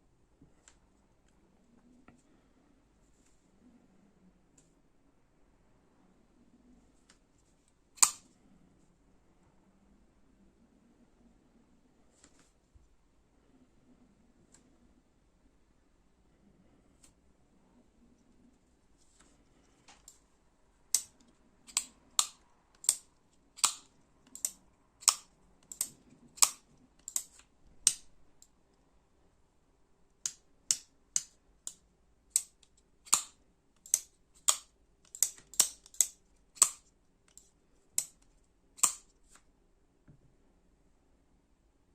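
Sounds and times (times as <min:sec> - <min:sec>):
folding knife clicking open and shut: 0:08.0 - 0:08.3, 0:20.9 - 0:28.5, 0:30.2 - 0:38.2, 0:38.8 - 0:39.1.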